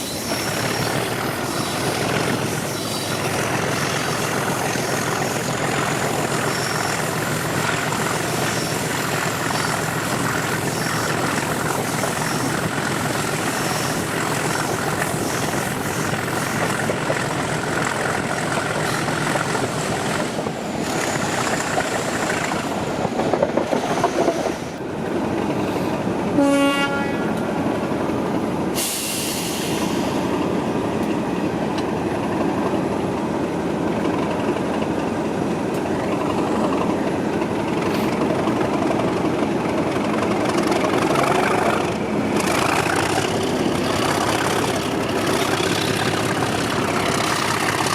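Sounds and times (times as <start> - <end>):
diesel locomotive working: 0.0 - 47.9
train horn toot: 26.4 - 27.3
carriages running noise: 35.5 - 47.9.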